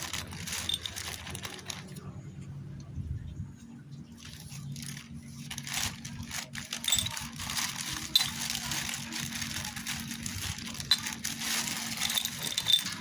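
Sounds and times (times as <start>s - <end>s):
metal parts and tools clinking: 0.0s - 1.8s, 5.8s - 13.0s
steady low hum: 0.0s - 13.0s.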